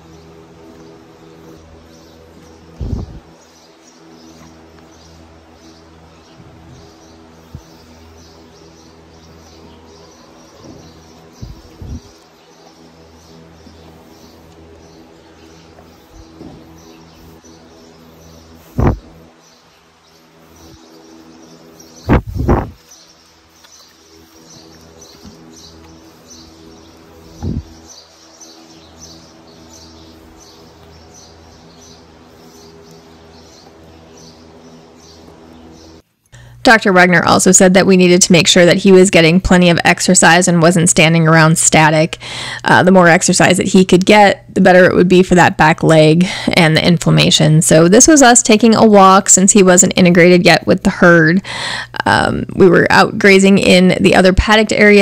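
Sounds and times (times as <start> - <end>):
birds chirping: 0.0 - 55.0
steady low hum: 0.0 - 55.0
short dull thumps: 18.8 - 19.2, 22.1 - 22.8.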